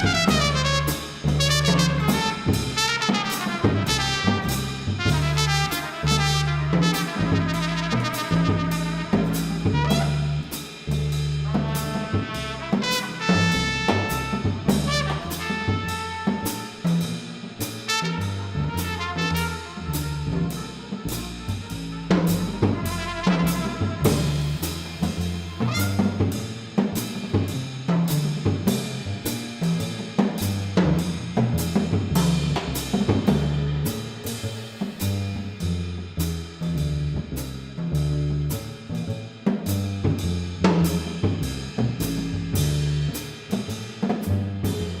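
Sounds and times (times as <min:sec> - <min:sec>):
trumpet-family horn melody: 0:00.0 - 0:10.6, 0:11.4 - 0:17.0, 0:17.8 - 0:26.4
double bass: 0:00.0 - 0:45.0
drum kit: 0:00.0 - 0:45.0.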